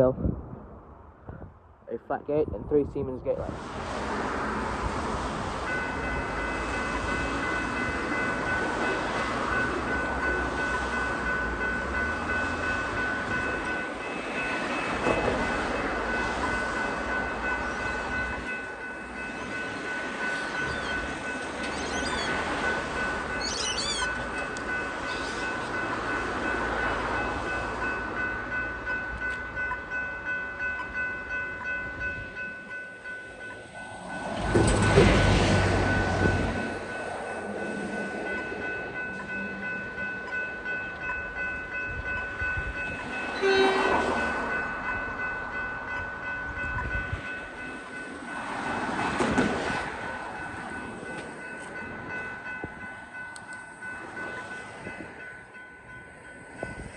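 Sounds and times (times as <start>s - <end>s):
loud rush of train: 0.0s - 56.9s
train rumble and clatter: 0.0s - 56.9s.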